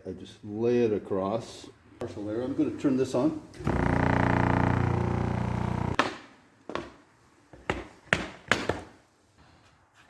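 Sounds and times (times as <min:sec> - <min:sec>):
small electric machine buzzing: 0:03.6 - 0:06.0.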